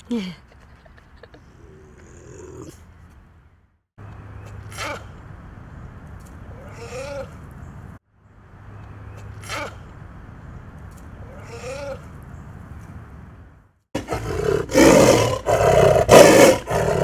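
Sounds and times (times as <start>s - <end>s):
big cat call: 0.0s - 2.8s, 14.0s - 17.0s.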